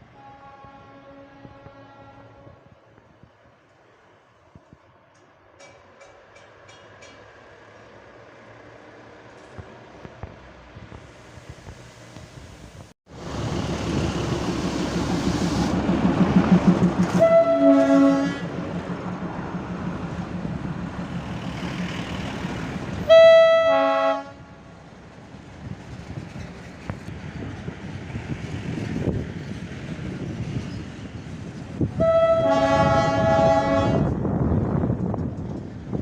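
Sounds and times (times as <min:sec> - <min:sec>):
locomotive horn blasts: 0:00.2 - 0:02.6, 0:17.1 - 0:18.5, 0:23.1 - 0:24.6, 0:32.0 - 0:34.2
diesel locomotive engine running: 0:07.2 - 0:36.0.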